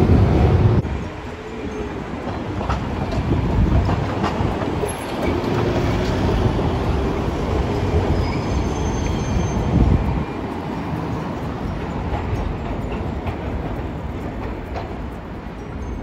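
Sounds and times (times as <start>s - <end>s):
streetcar wheels clicking over rail joints: 0.0s - 16.0s
wheels squealing on curve: 8.1s - 9.8s.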